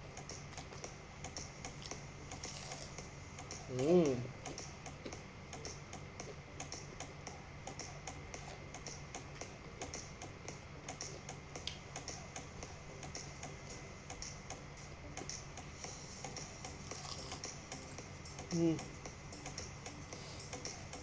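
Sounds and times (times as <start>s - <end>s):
chewing crispy fried food: 0.5s - 3.1s, 16.8s - 17.6s.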